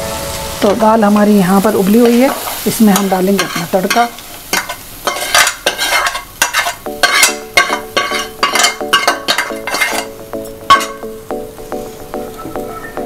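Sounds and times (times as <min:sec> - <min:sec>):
pan ringing: 0:00.0 - 0:02.3, 0:06.9 - 0:13.0
spoon scraping metal pan: 0:02.0 - 0:11.1.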